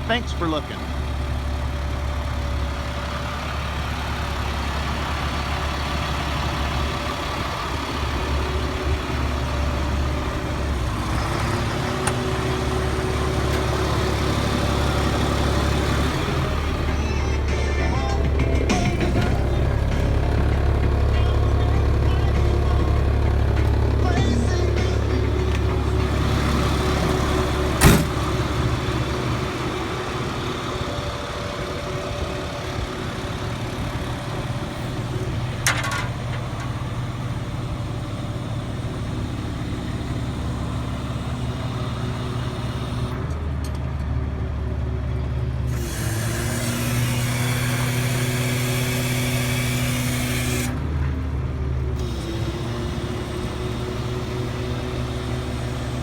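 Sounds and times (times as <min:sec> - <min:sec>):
diesel truck engine running: 0:00.0 - 0:56.0
metallic clank: 0:27.2 - 0:28.5, 0:35.6 - 0:36.8.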